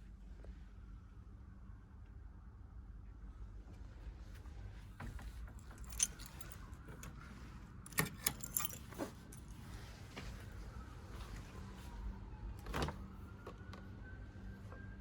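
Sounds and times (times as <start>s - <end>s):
keys jingling: 5.6s - 7.2s, 7.8s - 9.6s.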